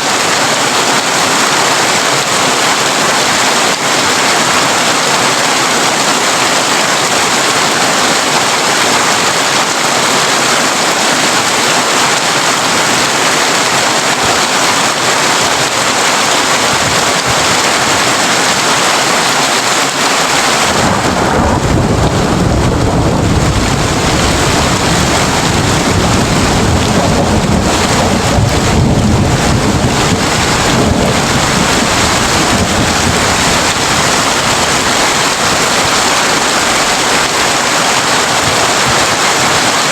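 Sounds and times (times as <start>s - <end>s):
heavy rain on a tin roof: 0.0s - 39.9s
thunder rumbling: 20.3s - 39.0s.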